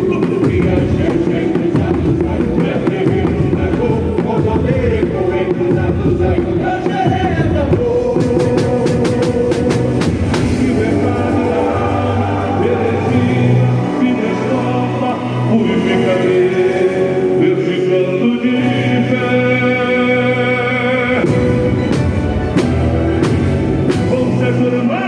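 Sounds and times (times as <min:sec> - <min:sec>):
singing over band and percussion: 0:00.0 - 0:25.0
sharp percussion hits: 0:05.6 - 0:16.1, 0:21.1 - 0:24.8.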